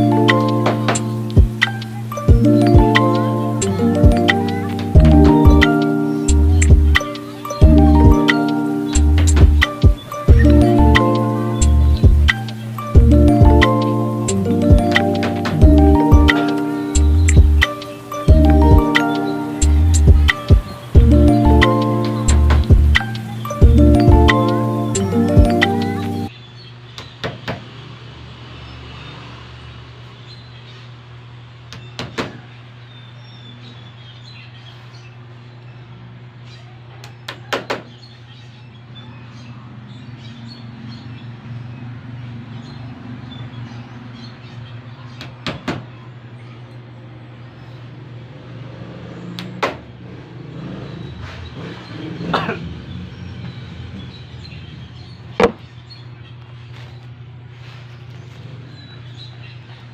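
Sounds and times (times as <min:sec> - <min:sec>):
steady low hum: 0:07.6 - 0:15.0, 0:19.6 - 0:26.1.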